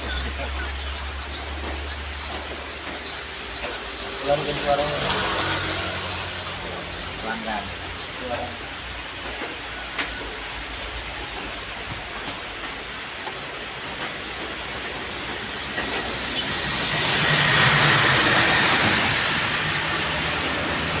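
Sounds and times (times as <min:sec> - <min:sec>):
heavy truck driving past: 0:03.8 - 0:07.6.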